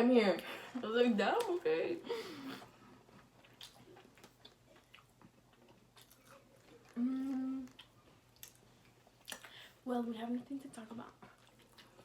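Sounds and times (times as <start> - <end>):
chewing food: 2.6 - 9.8, 10.4 - 12.0.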